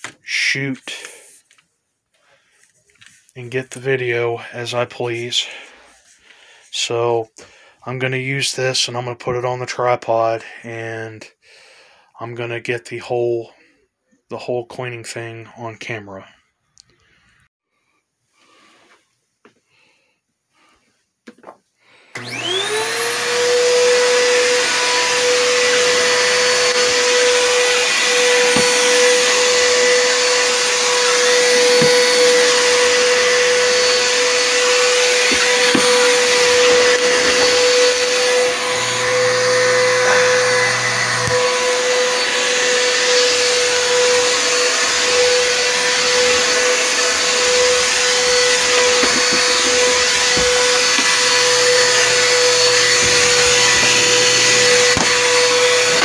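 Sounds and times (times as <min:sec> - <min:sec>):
vacuum cleaner running: 0:22.1 - 0:56.0.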